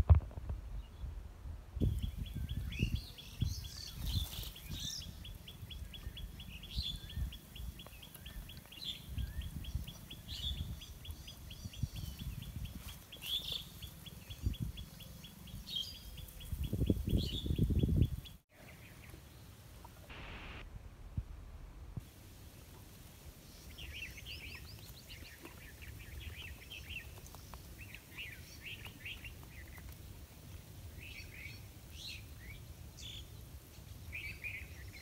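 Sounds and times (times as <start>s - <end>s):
small birds chirping: 1.8s - 20.6s, 23.1s - 35.0s
low rumble: 20.1s - 22.0s.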